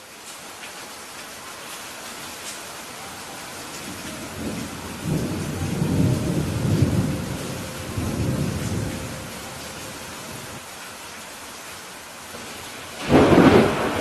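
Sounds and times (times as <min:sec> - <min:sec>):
rain hissing: 0:00.0 - 0:14.0
thunder rumbling: 0:03.8 - 0:10.6, 0:13.0 - 0:14.0.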